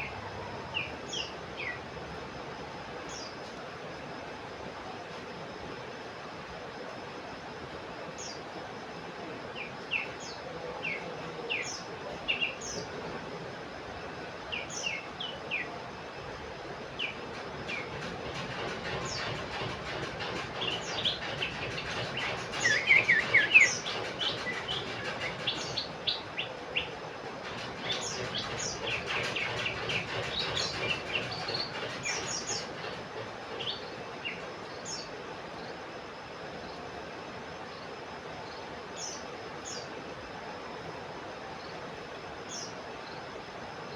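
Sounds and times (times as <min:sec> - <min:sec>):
steady background hiss: 0:00.0 - 0:43.9
bird chirps and whistled notes: 0:20.6 - 0:26.9.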